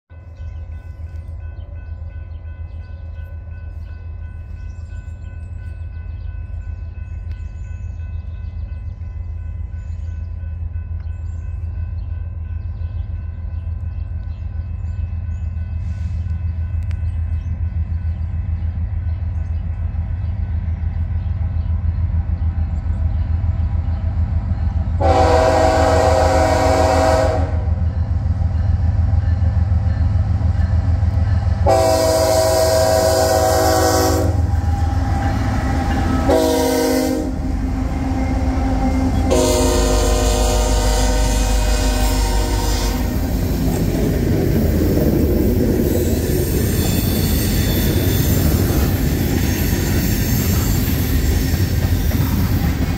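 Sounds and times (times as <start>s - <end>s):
diesel locomotive rumble: 0.2s - 52.9s
train horn blast: 25.0s - 27.9s, 31.6s - 43.3s.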